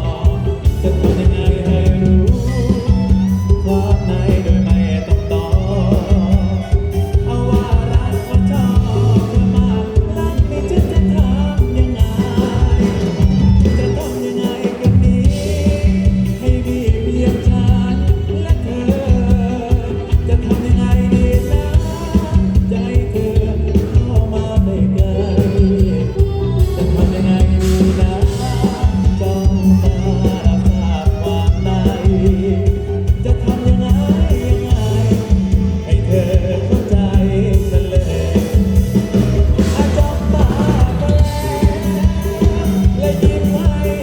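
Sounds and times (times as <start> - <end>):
band music through loudspeakers: 0.0 - 44.0
drum kit beat: 0.0 - 44.0
man singing: 0.0 - 44.0.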